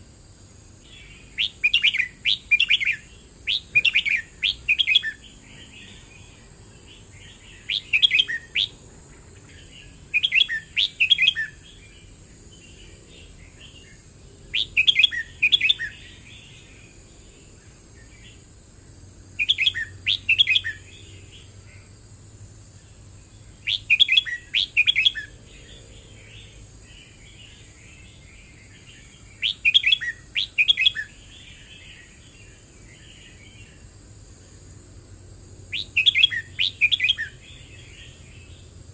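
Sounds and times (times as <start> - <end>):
bird singing warbled phrases: 0.8 - 18.5, 19.3 - 22.0, 22.7 - 33.9, 35.7 - 38.9
bird chattering notes: 1.4 - 5.2, 7.6 - 8.8.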